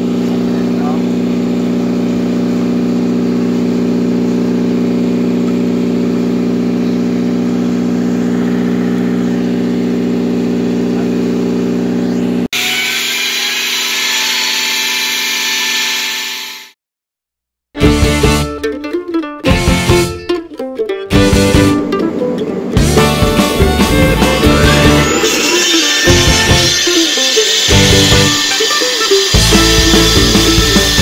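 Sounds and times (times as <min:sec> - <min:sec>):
engine running steadily: 0:00.0 - 0:12.5
high machine whine with hiss: 0:22.8 - 0:31.0.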